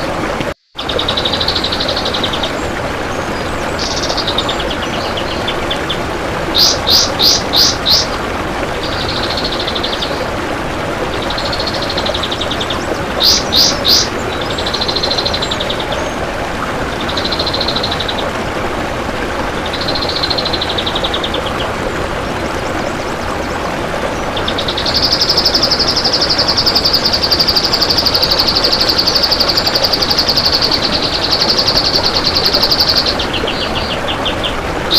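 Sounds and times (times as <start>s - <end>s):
bulbul singing: 3.8s - 8.2s, 11.2s - 16.2s, 24.4s - 34.6s.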